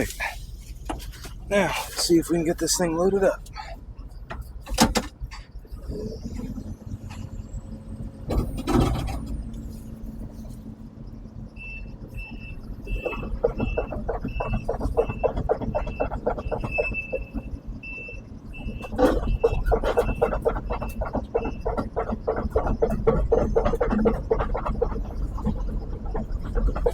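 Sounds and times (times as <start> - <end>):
engine rumble: 0.0 - 26.9
excavator travel alarm beeping: 10.8 - 24.4
steel tracks clanking: 11.6 - 26.9.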